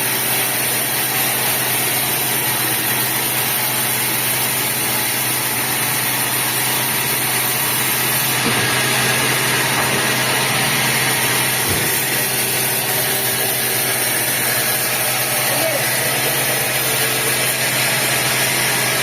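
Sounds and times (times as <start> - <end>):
sawmill machinery low hum: 0.0 - 19.0.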